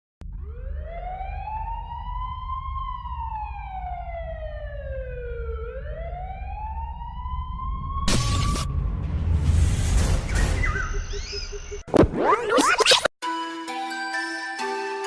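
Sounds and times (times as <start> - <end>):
siren wailing: 0.2 - 9.0, 10.4 - 12.8
steady low rumble: 0.2 - 11.9.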